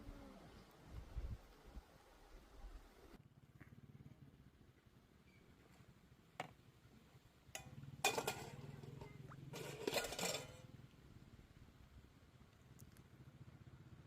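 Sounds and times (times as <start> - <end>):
dishes and utensils clattering: 7.6 - 10.6.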